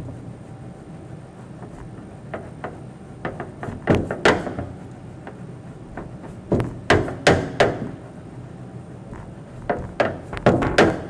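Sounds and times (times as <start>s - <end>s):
knocks and thuds: 5.9s - 8.0s, 9.1s - 11.0s.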